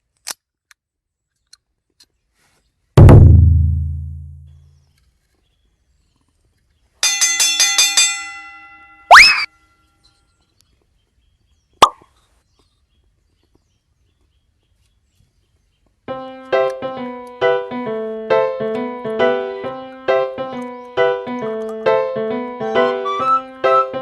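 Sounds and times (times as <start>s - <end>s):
light piano-like background music: 16.1s - 24.0s.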